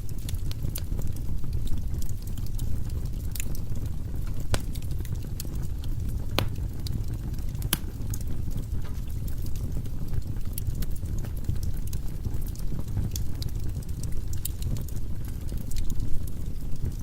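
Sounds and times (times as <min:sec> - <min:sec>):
firewood crackling and popping: 0:04.2 - 0:16.0.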